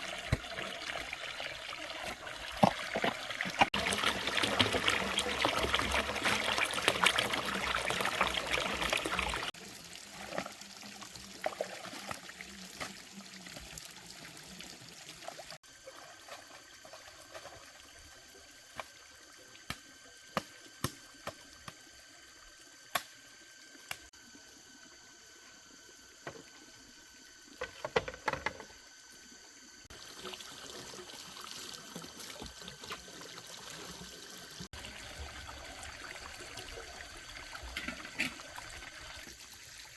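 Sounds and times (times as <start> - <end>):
water trickling and pouring: 0.0 - 19.5, 29.9 - 39.9.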